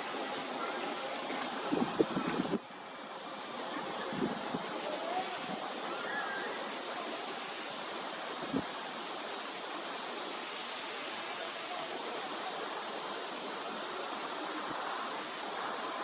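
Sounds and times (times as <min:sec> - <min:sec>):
water flowing: 0:00.0 - 0:16.0.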